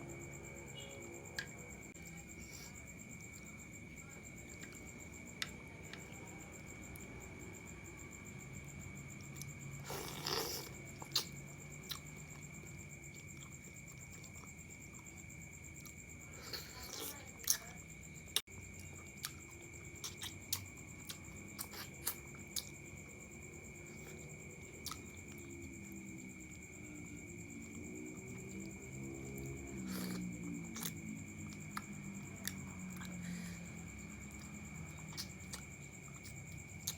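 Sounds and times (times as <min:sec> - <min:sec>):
faint high-pitched tone: 0:00.6 - 0:01.3
chewing noodles: 0:08.6 - 0:36.9.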